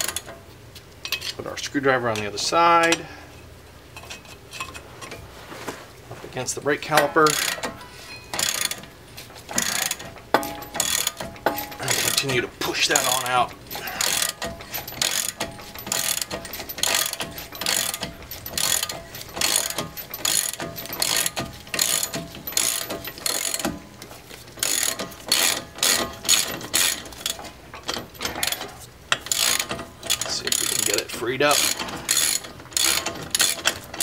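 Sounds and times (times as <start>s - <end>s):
ratchet wrench clicking: 7.3s - 8.8s, 9.5s - 23.8s, 24.6s - 34.0s.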